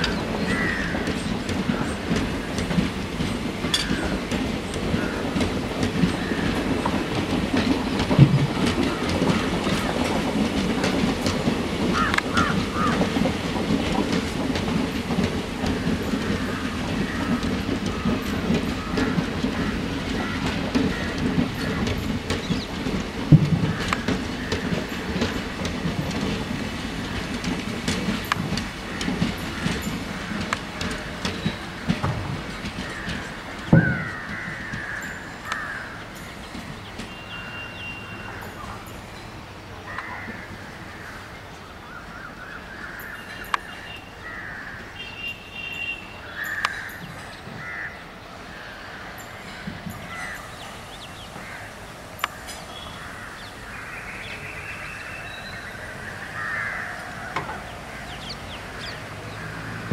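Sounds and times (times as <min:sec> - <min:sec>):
train wheels rumbling and clicking: 0:00.0 - 0:59.9
crows cawing: 0:00.4 - 0:01.9, 0:11.9 - 0:13.1, 0:16.2 - 0:18.1, 0:18.8 - 0:22.0, 0:32.8 - 0:36.1, 0:39.9 - 0:41.2, 0:42.1 - 0:45.0, 0:46.2 - 0:48.0, 0:48.6 - 0:50.7, 0:51.4 - 0:59.9.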